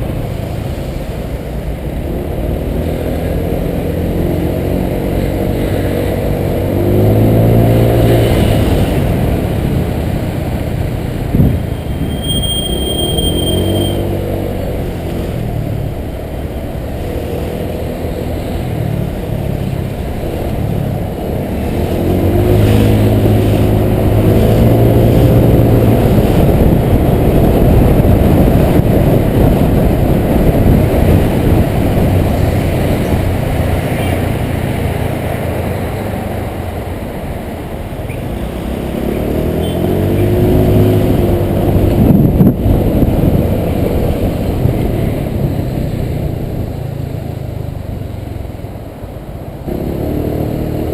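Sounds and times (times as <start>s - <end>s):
wind and road noise: 0.0s - 50.9s
scooter engine accelerating: 49.7s - 50.9s.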